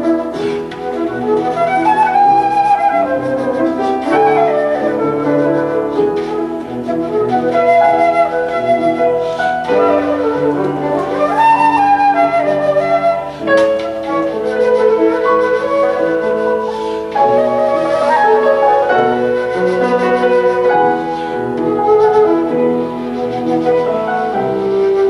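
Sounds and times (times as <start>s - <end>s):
flute playing slow melody: 0.0s - 25.0s
piano accompaniment: 0.0s - 25.0s.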